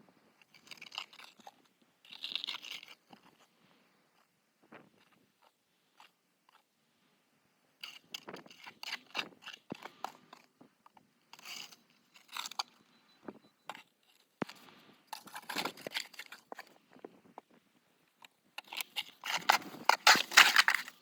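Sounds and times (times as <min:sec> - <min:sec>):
snow shovel scraping snow: 0:19.3 - 0:21.0.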